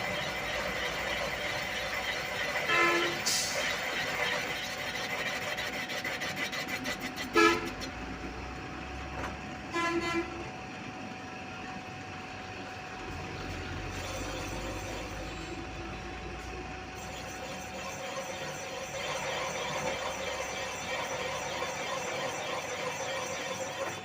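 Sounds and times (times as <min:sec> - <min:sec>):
vehicle horn toots: 0:02.7 - 0:03.2, 0:07.3 - 0:07.8, 0:09.7 - 0:10.4.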